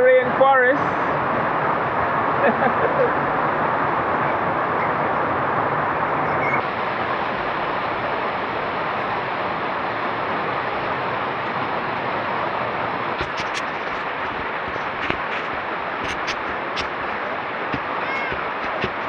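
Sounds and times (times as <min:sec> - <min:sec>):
heavy rain falling: 0:13.2 - 0:19.0
sharp clicks: 0:13.2 - 0:19.0.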